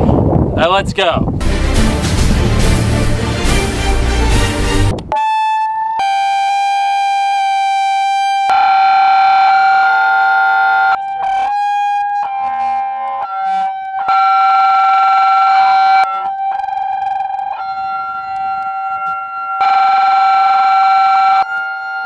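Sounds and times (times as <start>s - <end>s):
siren-like tones: 5.0s - 22.0s
megaphones blaring high tone: 5.2s - 22.0s.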